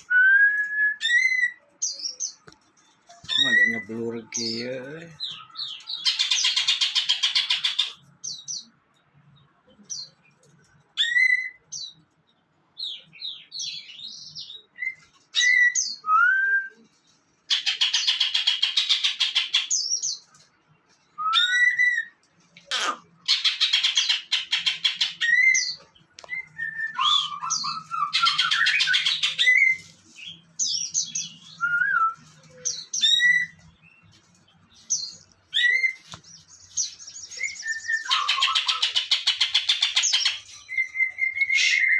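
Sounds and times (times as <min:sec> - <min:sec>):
songbird whistled notes: 0:25.2 - 0:29.9, 0:30.9 - 0:33.6, 0:37.2 - 0:39.0.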